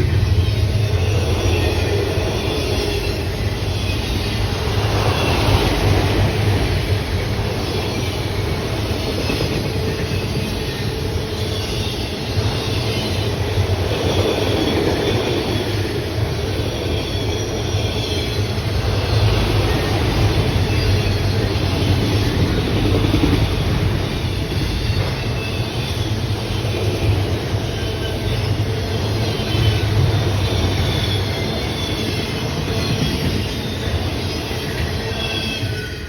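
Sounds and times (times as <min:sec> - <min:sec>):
train wheels on rails: 0:00.0 - 0:36.0
faint wheel squeal: 0:24.2 - 0:36.0.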